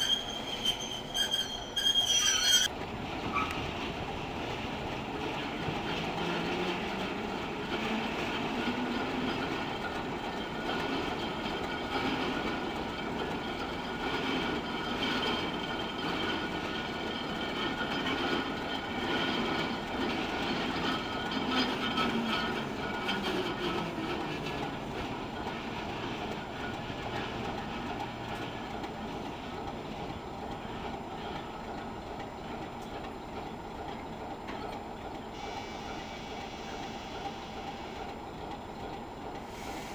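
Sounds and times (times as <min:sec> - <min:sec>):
wheel squeal: 0:00.0 - 0:02.7, 0:03.3 - 0:03.6
wheels clicking over rail joints: 0:00.0 - 0:35.4
diesel locomotive engine running: 0:02.6 - 0:39.9.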